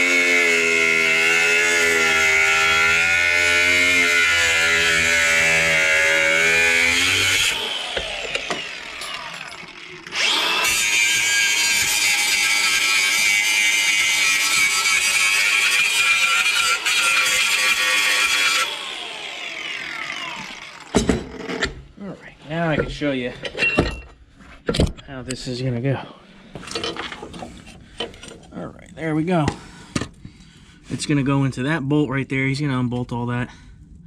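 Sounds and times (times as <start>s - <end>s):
grinder cutting steel: 0.0s - 21.8s.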